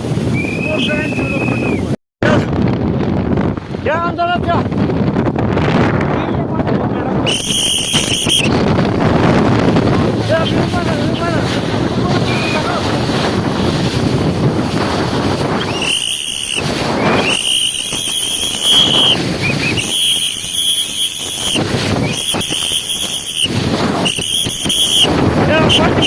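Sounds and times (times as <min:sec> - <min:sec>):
choppy lake water: 0:00.0 - 0:26.0
gusty wind on microphone: 0:00.0 - 0:26.0
high-pitched steady tone: 0:15.6 - 0:25.1.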